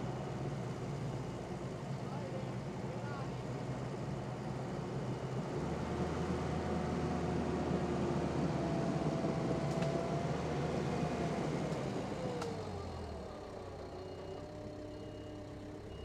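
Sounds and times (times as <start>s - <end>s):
skid steer engine running: 5.6s - 16.0s.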